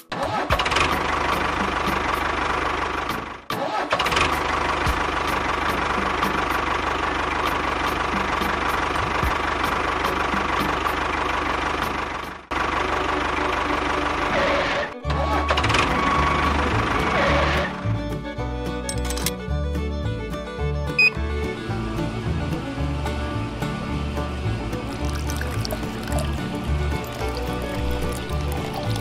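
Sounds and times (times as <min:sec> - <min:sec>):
tractor engine knocking: 0:04.1 - 0:13.6.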